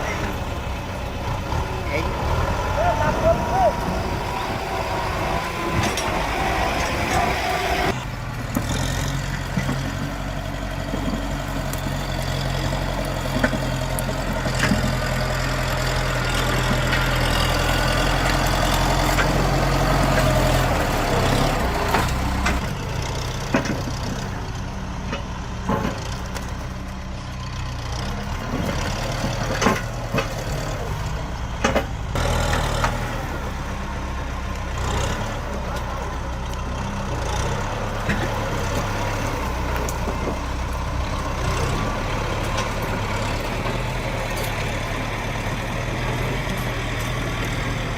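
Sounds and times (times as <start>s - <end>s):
tractor engine running: 0.0s - 47.9s
sharp knocks and clanks: 28.5s - 30.6s, 31.6s - 33.0s.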